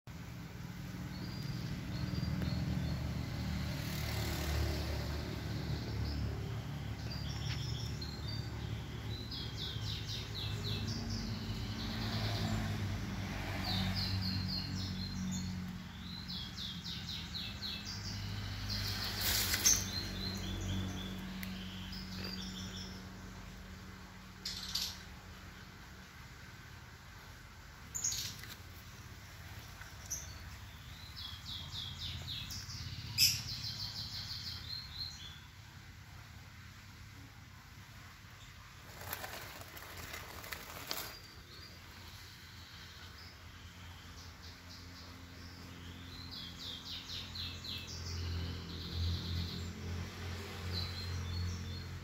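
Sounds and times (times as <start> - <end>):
small birds chirping: 0.1 - 52.0.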